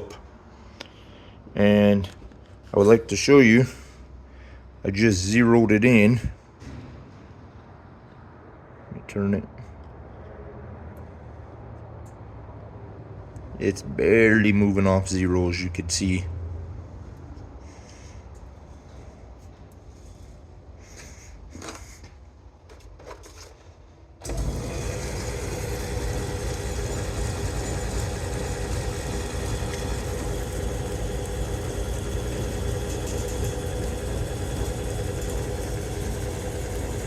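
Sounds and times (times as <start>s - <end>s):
lathe running: 24.2s - 37.0s.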